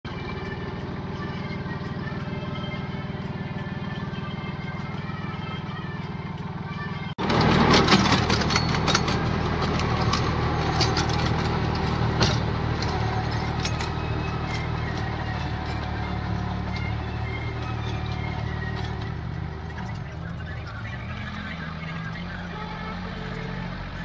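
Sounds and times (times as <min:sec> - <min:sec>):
tractor diesel engine running: 0:00.0 - 0:24.0
metallic clanks and rattles: 0:07.2 - 0:20.1.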